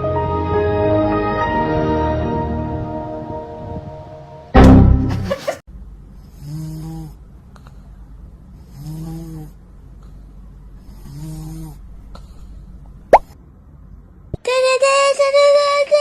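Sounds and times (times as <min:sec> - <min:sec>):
cat snoring: 0:06.3 - 0:07.2, 0:08.6 - 0:09.6, 0:10.8 - 0:11.8.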